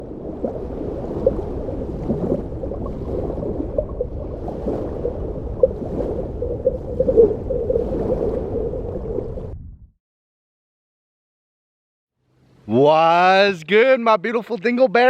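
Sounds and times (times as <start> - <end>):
water gurgling and bubbling: 0.0 - 9.9.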